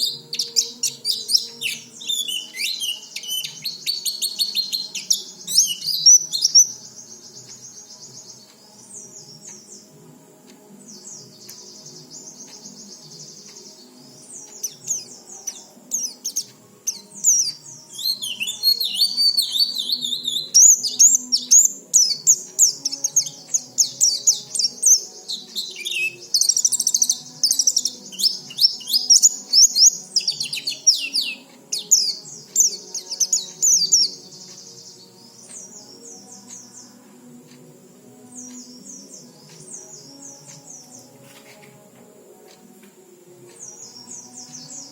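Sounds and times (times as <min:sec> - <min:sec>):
bird twittering song: 0:00.0 - 0:41.9, 0:43.4 - 0:44.9.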